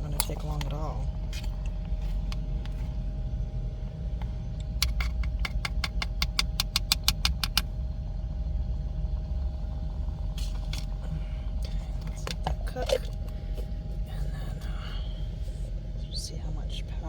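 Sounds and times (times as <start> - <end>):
electric kettle boiling: 8.7 - 13.7.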